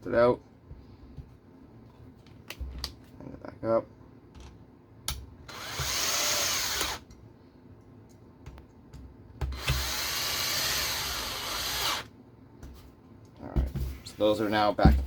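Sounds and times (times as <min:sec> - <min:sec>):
power screwdriver running: 0:05.5 - 0:07.0, 0:09.6 - 0:12.1.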